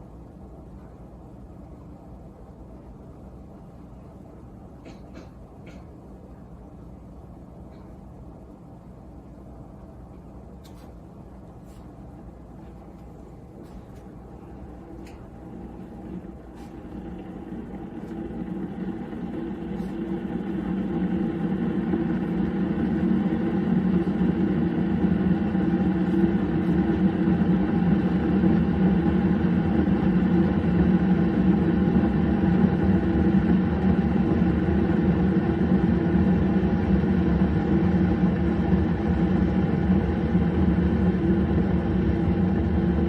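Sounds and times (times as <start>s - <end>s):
coffee maker humming: 11.1s - 43.0s.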